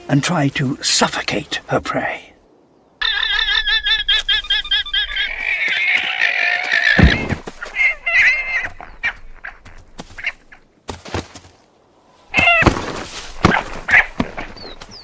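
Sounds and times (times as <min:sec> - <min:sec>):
animal bleating cries: 0:03.0 - 0:09.6
thuds and scuffling: 0:12.3 - 0:15.0.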